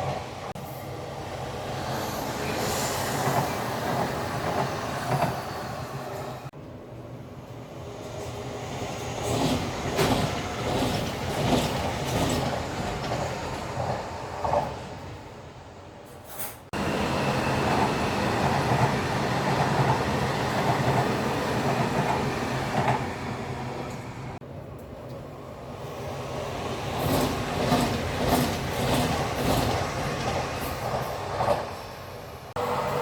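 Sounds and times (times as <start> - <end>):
train rumble: 0.0 - 33.0.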